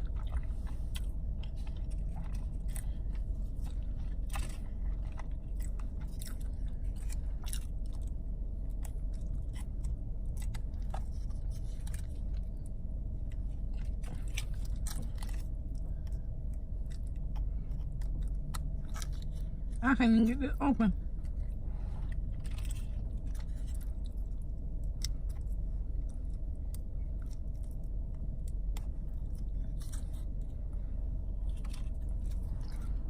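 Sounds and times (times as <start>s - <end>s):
person chewing food: 0.0s - 19.8s, 21.0s - 33.0s
low hum: 0.0s - 33.0s.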